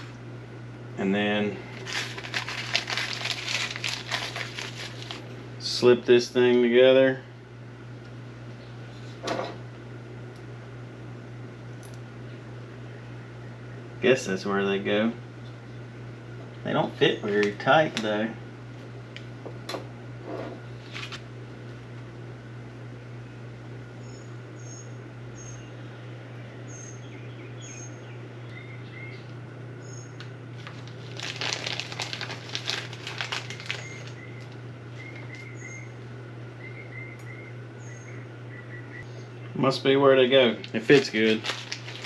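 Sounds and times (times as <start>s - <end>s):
steady low hum: 0.0s - 42.0s
small birds chirping: 24.0s - 30.2s, 33.7s - 39.6s.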